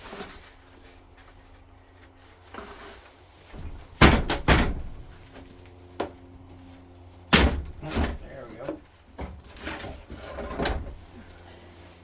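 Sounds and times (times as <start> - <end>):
loud thumps: 3.6 - 5.2.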